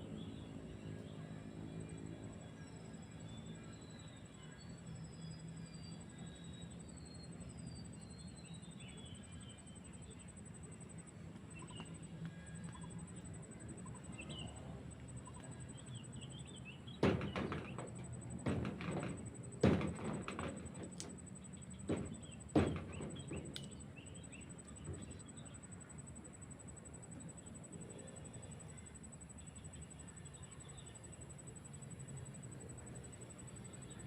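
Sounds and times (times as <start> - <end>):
faint bird chirp: 0.1 - 17.0, 21.4 - 34.0
sharp knocks: 16.9 - 24.0.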